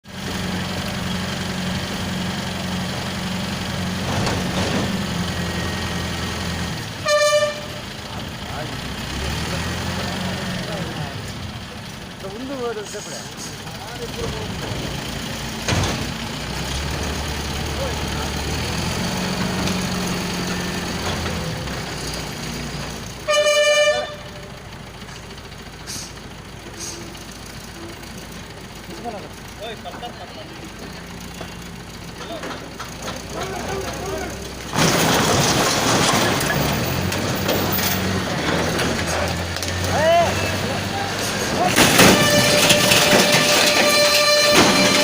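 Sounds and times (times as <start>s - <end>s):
truck engine running: 0.0s - 45.0s
truck horn blast: 6.8s - 8.0s, 23.2s - 24.6s, 41.6s - 45.0s.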